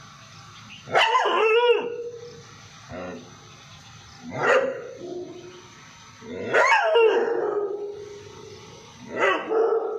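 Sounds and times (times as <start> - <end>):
dog barking loudly: 0.9 - 2.2, 4.3 - 5.4, 6.5 - 8.0, 9.1 - 9.9.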